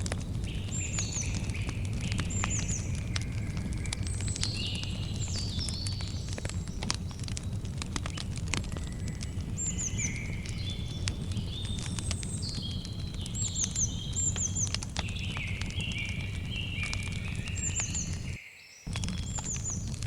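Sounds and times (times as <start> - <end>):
campfire crackling: 0.0 - 20.0
bird singing whistled phrases: 8.8 - 19.9.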